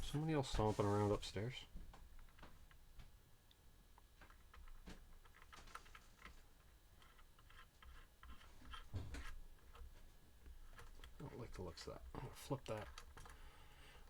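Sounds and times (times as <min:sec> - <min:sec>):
dull thump: 0:08.9 - 0:09.3.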